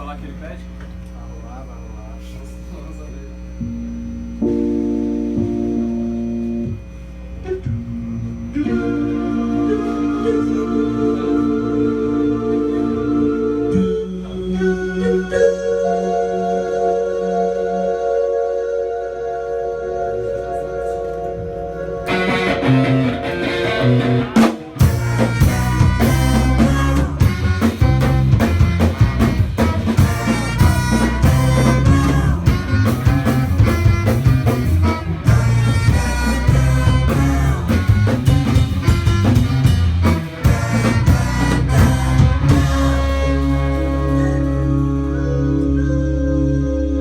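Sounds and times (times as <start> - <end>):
live instrumental band: 8.4 - 47.0
drum kit groove: 22.1 - 44.8.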